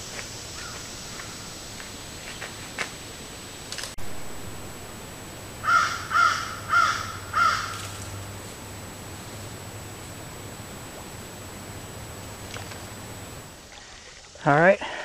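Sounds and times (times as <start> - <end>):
microphone hiss: 0.0 - 14.8
bird calls: 0.6 - 1.6, 5.6 - 8.2.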